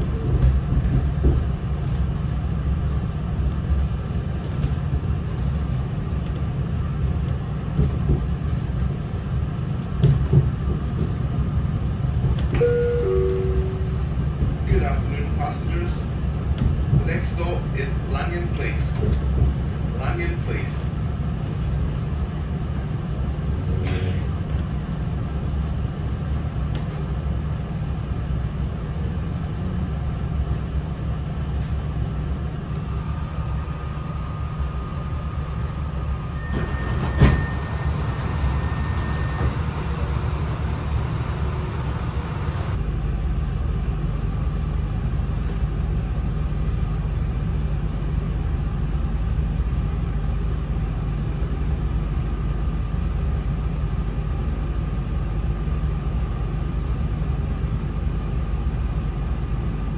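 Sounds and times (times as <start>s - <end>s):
train engine and wheels rumbling: 0.0s - 59.9s.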